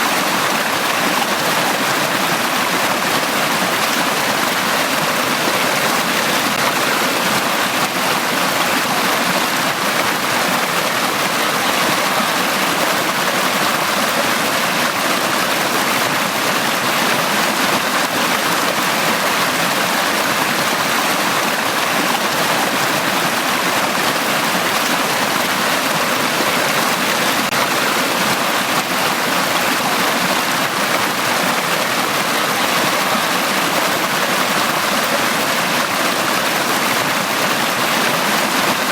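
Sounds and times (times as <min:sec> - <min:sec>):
stream flowing over rocks: 0:00.0 - 0:38.9.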